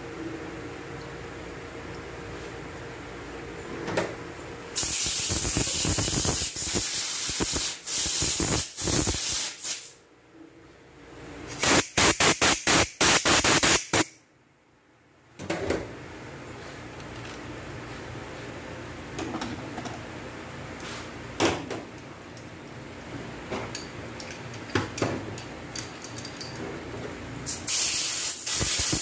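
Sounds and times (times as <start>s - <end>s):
pressurised spray hissing: 4.8s - 9.9s, 27.6s - 29.0s.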